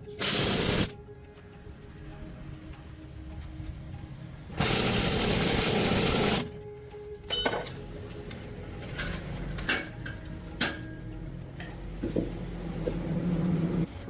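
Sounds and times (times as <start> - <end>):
loud hiss: 0.2 - 0.9, 4.6 - 6.4
ringing metal clank: 7.3 - 7.9, 11.6 - 12.2.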